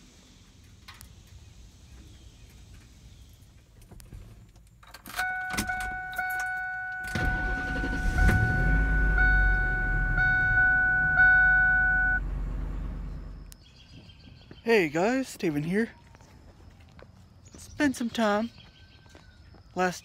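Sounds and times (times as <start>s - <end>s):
engine low rumble: 0.0s - 17.8s
car engine cranking and starting: 2.6s - 13.6s
car warning tone: 5.1s - 12.4s.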